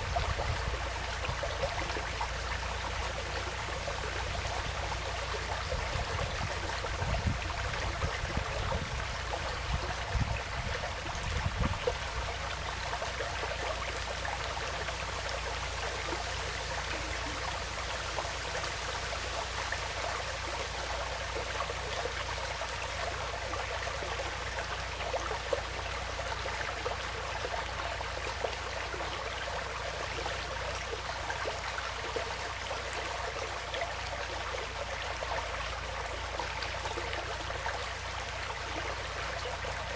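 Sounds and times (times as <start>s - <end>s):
stream trickling: 0.0s - 39.9s
low rumbling bumps: 4.1s - 13.1s.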